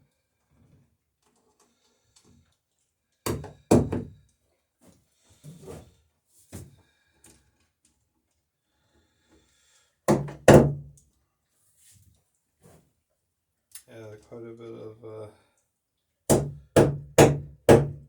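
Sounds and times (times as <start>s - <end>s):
hammer striking nails into wood: 3.3s - 4.1s, 10.1s - 10.8s, 16.3s - 18.0s.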